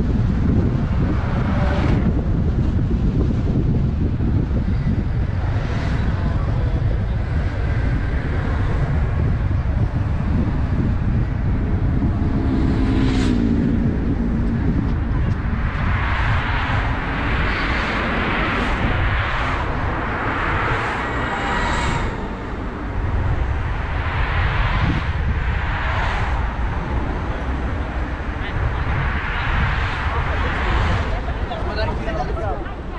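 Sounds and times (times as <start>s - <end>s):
road and wind noise: 0.0s - 32.9s
hissing swells: 15.4s - 31.4s.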